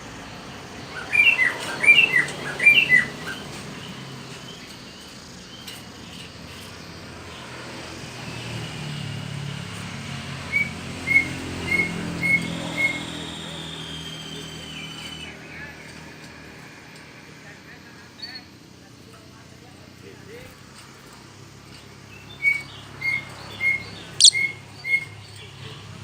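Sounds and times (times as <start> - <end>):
songbird chirping: 22.1 - 25.6.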